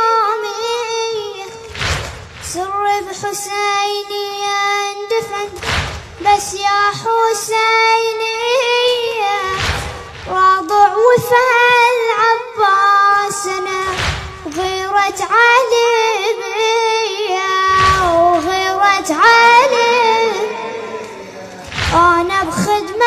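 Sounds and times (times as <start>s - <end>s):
child singing solo: 10.3s - 23.0s.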